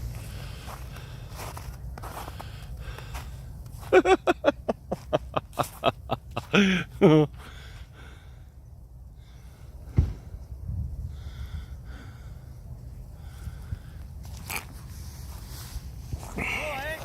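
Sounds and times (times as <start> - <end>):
thump: 9.9 - 10.4.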